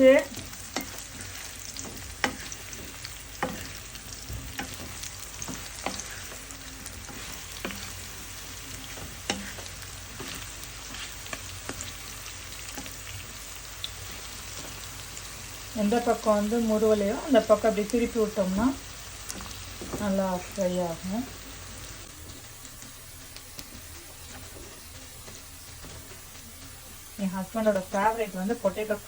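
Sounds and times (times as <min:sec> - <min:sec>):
potatoes sizzling in oil: 0:00.0 - 0:29.0
spatula scraping a pan: 0:00.1 - 0:13.3.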